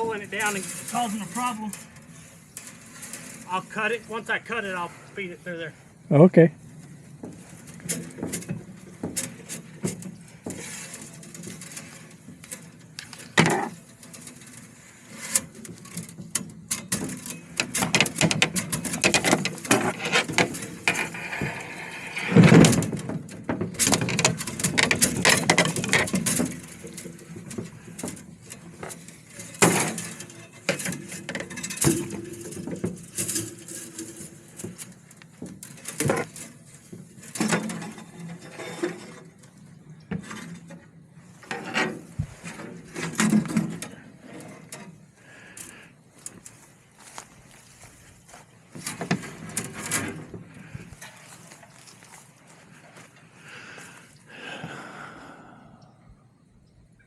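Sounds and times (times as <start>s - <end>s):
fence wire clicking and clinking: 0.0s - 3.9s, 7.2s - 39.6s.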